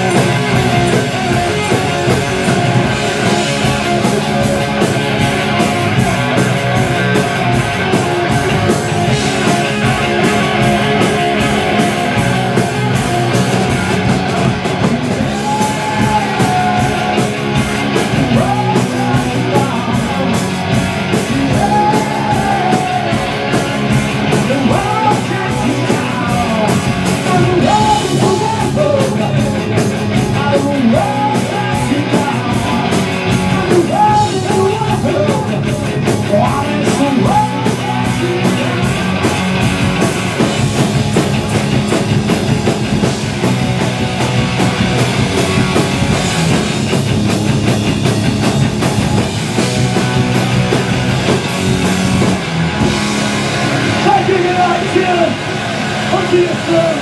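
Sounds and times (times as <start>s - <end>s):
man singing: 0.0s - 4.8s, 9.5s - 17.3s, 18.1s - 20.5s, 21.1s - 23.2s, 24.3s - 39.2s
distorted electric guitar: 0.0s - 57.0s
driving drums: 0.0s - 57.0s
live rock band playing: 0.0s - 57.0s.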